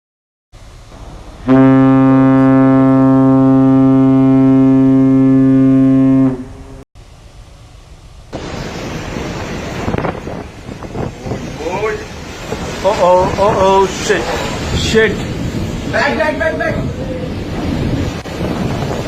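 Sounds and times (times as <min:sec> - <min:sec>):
broad rushing noise: 0:00.6 - 0:03.8, 0:06.4 - 0:19.0
ship's horn blast: 0:01.4 - 0:06.8.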